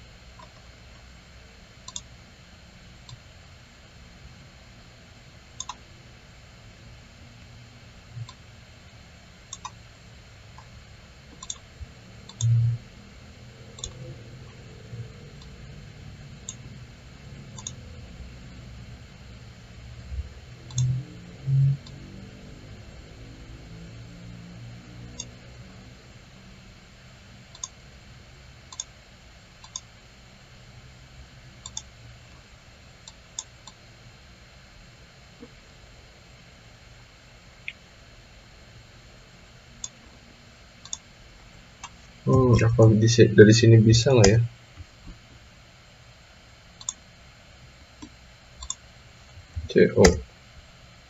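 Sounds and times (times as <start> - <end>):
short low hum: 0.0 - 51.0
computer mouse clicking: 0.4 - 0.7, 1.8 - 2.1, 5.6 - 5.8, 8.2 - 8.4, 9.5 - 9.8, 11.3 - 12.7, 13.7 - 14.0, 17.5 - 17.8, 20.6 - 21.0, 25.1 - 25.4, 27.5 - 27.8, 28.7 - 28.9, 29.6 - 29.9, 31.6 - 31.9, 33.0 - 33.8, 40.8 - 41.1, 46.8 - 47.0, 48.0 - 48.8.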